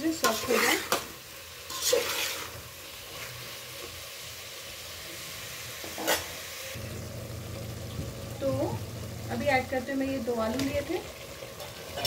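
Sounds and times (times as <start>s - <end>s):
food sizzling in a pot: 0.0s - 12.0s
low steady hum: 6.8s - 10.4s.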